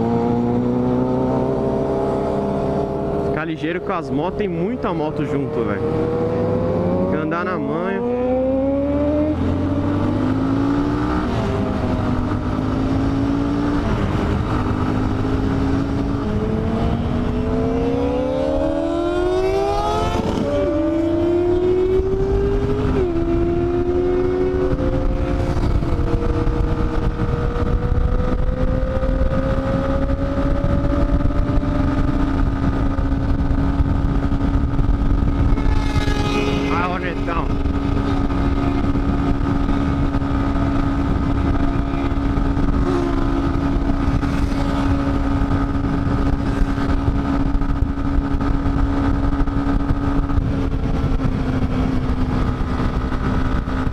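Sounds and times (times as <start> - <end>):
motorcycle engine accelerating: 0.0 - 53.9
wind rush: 0.0 - 53.9.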